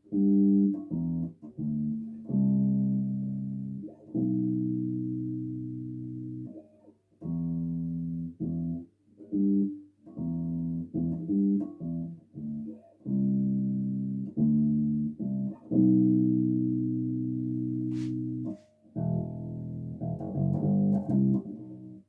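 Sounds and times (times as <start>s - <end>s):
bass guitar plucked notes: 9.4s - 22.0s.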